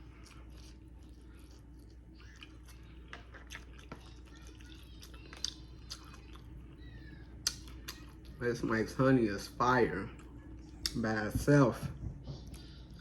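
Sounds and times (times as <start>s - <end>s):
wet chewing and lip smacking: 0.0s - 8.4s, 10.1s - 11.0s.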